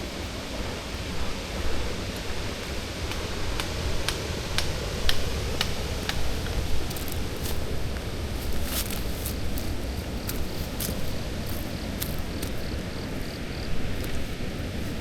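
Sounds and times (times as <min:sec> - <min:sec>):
faint insect chirping: 0:00.0 - 0:15.0
outdoor background noise: 0:00.0 - 0:15.0
footsteps walking: 0:06.0 - 0:15.0.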